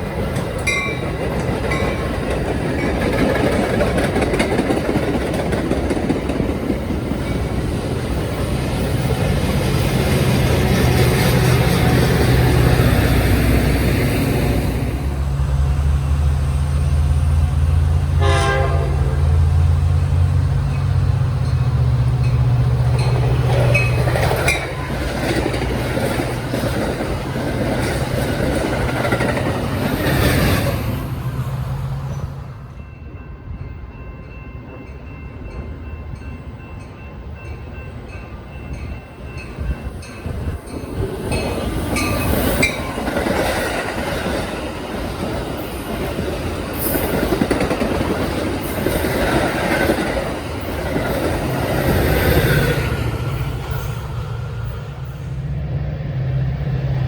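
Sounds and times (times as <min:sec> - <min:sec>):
train wheels clicking over rail joints: 0:00.0 - 0:17.4, 0:20.1 - 0:31.0, 0:38.7 - 0:54.8
diesel locomotive droning: 0:00.0 - 0:57.0.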